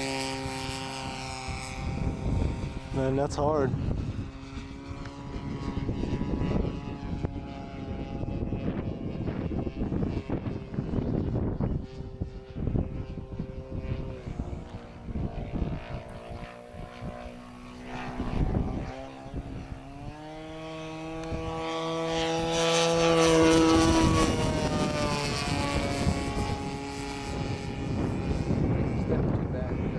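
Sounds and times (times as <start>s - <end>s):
model plane engine flying past: 0.0s - 29.9s.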